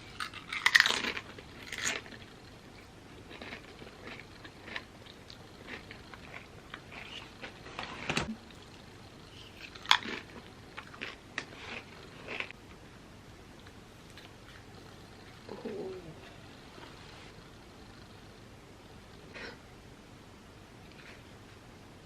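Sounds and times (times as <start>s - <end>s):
crunchy chips being chewed: 0.0s - 12.6s.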